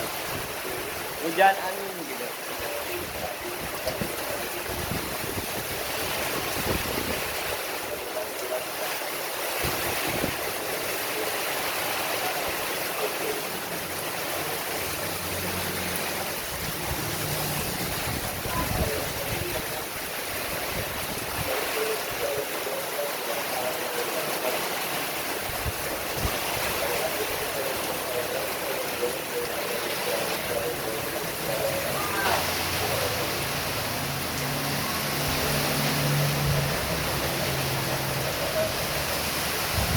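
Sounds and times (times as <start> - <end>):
heavy rain pouring: 0.0 - 39.9
strong wind: 3.0 - 7.8, 9.6 - 10.6, 16.2 - 22.3, 25.4 - 27.5, 39.4 - 39.9.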